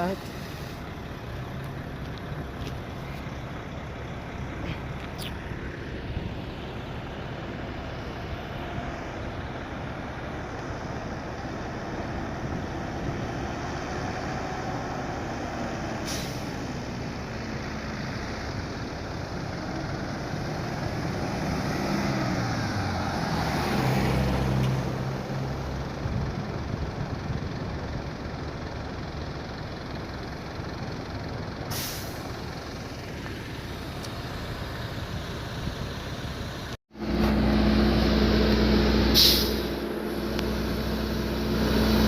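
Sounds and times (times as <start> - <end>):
heavy truck engine labouring: 0.0 - 42.0
brief sharp hiss or click: 39.2 - 39.7.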